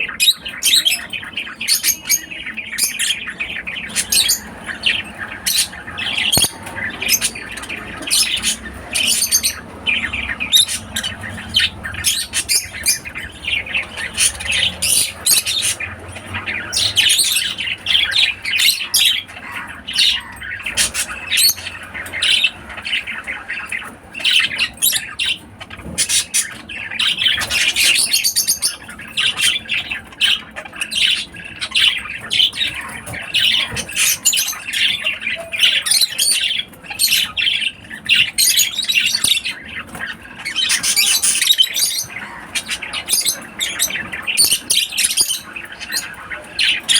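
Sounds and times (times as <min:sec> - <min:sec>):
lovebirds squawking and chirping: 0:00.0 - 0:46.9.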